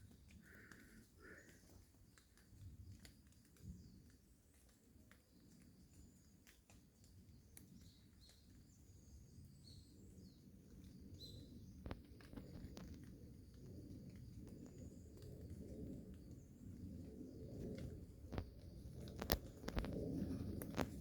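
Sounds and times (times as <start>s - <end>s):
quiet low rumble: 12.6s - 21.0s.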